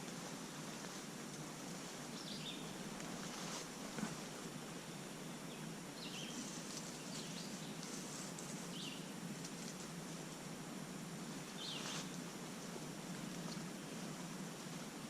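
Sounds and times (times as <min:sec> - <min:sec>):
steady background hiss: 0:00.0 - 0:15.0
small birds chirping: 0:01.9 - 0:02.9, 0:04.6 - 0:09.2, 0:11.4 - 0:12.2.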